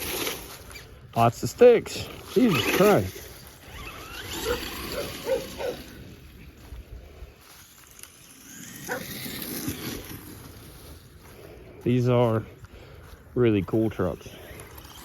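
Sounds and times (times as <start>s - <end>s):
dogs barking: 4.3s - 6.0s, 8.8s - 9.1s.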